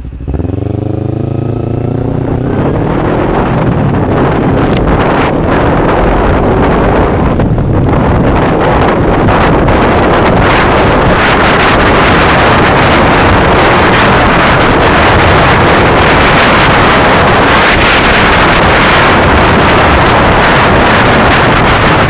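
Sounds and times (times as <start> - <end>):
motorcycle engine running: 0.0 - 22.0
wind noise on microphone: 0.0 - 22.0.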